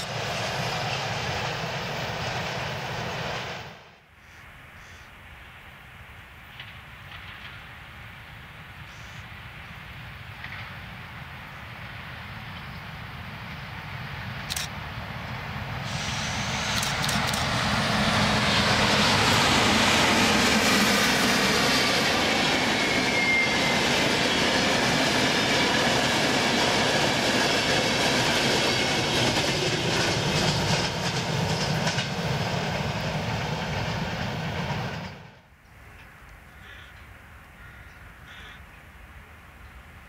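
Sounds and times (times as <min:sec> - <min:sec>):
train wheels rumbling and clattering: 0:06.4 - 0:08.2, 0:09.9 - 0:13.4, 0:14.2 - 0:36.1
wheel squeal: 0:21.7 - 0:24.0.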